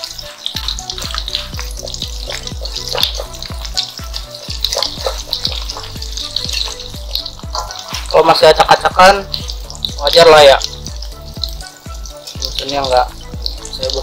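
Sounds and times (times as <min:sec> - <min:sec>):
spatula in pan: 0:00.0 - 0:08.5
fritters sizzling in oil: 0:00.0 - 0:14.0
music with steady beat: 0:00.0 - 0:14.0.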